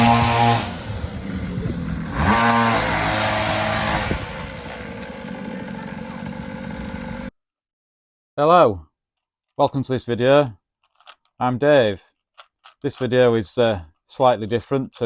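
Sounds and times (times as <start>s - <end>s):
small motorbike engine revving: 0.0s - 7.3s.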